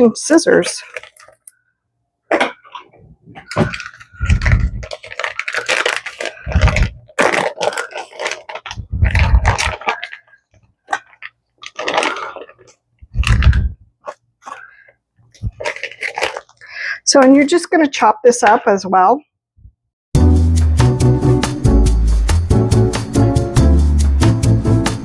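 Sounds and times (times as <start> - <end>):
packaging crackling and crinkling: 0.3 - 1.6, 2.3 - 16.8
scissors cutting package: 3.4 - 14.7, 15.4 - 16.6.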